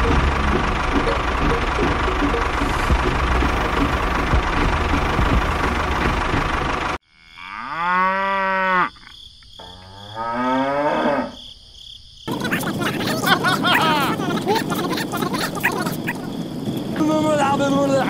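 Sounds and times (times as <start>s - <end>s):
cow mooing: 7.1s - 9.0s, 9.6s - 11.4s.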